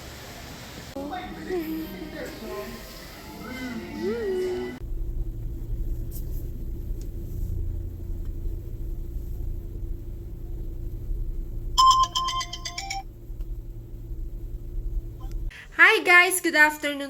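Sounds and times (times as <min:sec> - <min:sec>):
steady low rumble: 0:04.0 - 0:15.8
electronic chime: 0:11.8 - 0:13.0.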